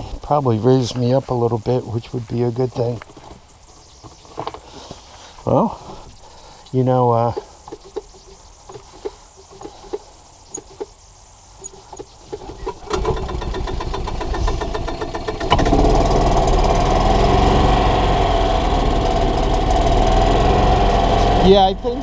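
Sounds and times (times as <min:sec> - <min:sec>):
golf cart engine running: 0:12.3 - 0:22.0.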